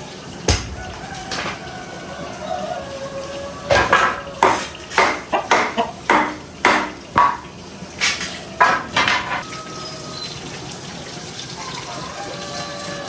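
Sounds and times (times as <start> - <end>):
dishes and pots clanking: 0.5 - 1.8, 3.7 - 9.5.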